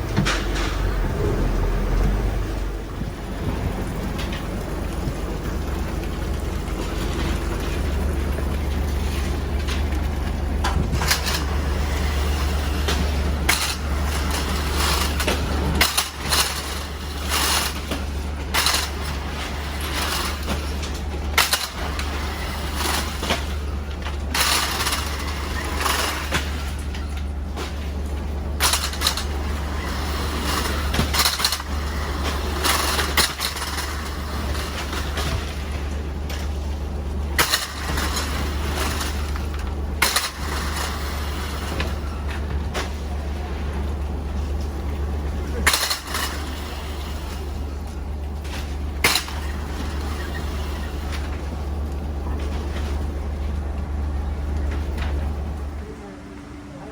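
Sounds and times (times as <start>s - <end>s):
boat engine running: 0.0s - 33.2s.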